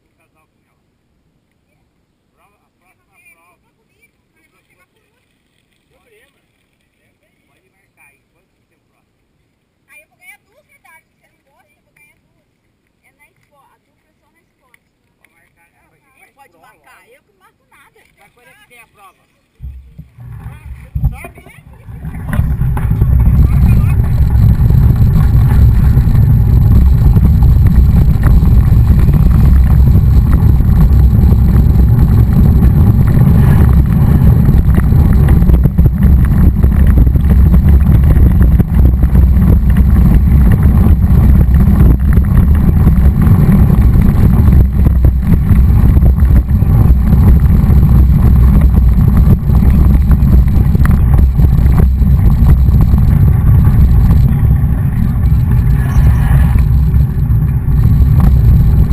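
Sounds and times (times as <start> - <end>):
wind and road noise rumble: 18.4 - 58.9.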